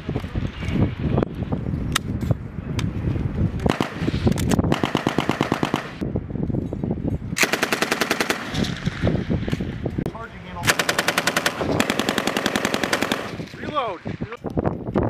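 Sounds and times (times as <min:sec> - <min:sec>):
steady gunfire: 0:03.7 - 0:06.0, 0:07.4 - 0:08.8, 0:10.6 - 0:13.5
machine gun bursts: 0:04.7 - 0:05.9, 0:10.7 - 0:13.4.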